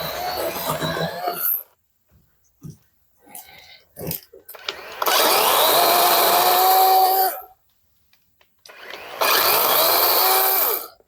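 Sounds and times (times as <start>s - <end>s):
chainsaw running: 4.6s - 7.4s, 8.7s - 11.0s.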